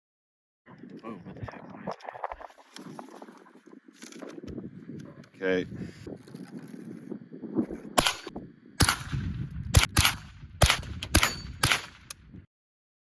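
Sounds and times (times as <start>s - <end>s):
rifle shots: 8.0s - 12.3s.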